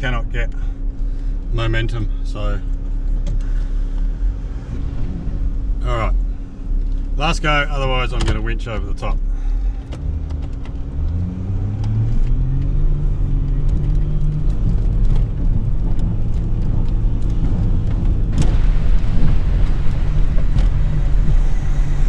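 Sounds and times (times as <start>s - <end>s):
car engine revving hard: 14.1s - 22.0s
tyres churning sand: 18.3s - 22.0s.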